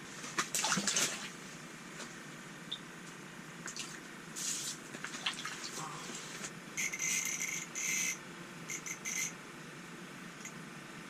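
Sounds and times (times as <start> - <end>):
water splashing and dripping: 0.4 - 1.3.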